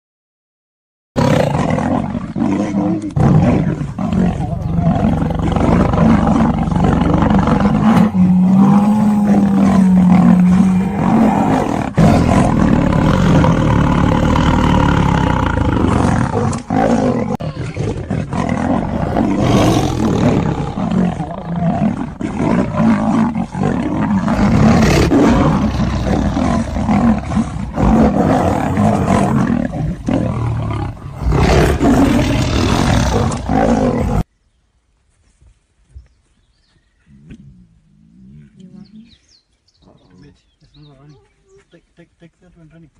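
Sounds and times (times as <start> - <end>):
big cats roaring and snarling: 1.2 - 34.3.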